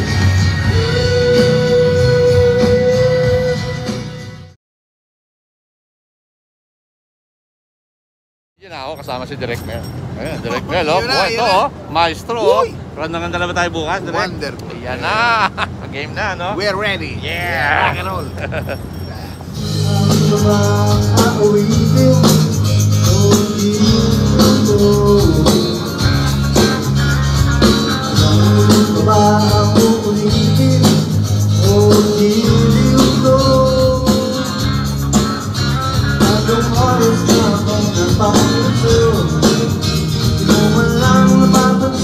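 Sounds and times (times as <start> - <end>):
rock band playing live: 0.0 - 4.5, 18.0 - 42.0.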